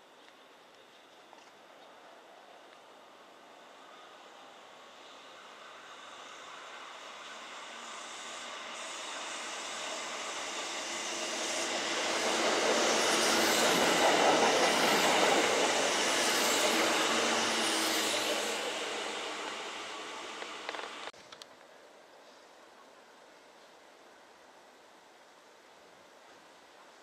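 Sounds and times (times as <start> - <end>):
electric train passing: 2.9 - 21.1.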